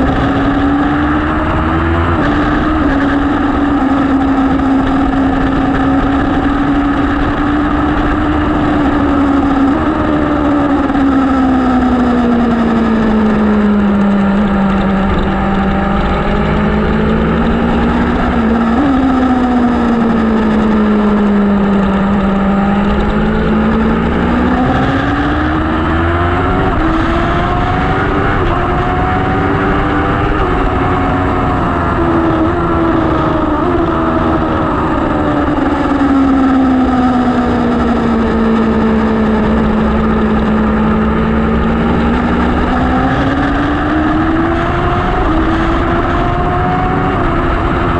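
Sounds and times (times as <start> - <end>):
vehicle engine revving: 0.0 - 47.9.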